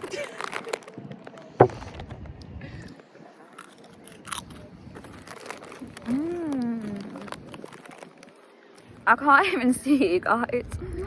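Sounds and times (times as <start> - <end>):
crisp packet crinkling: 0.0 - 1.4, 3.6 - 8.5
crisps being crunched: 0.0 - 2.4, 3.5 - 8.6.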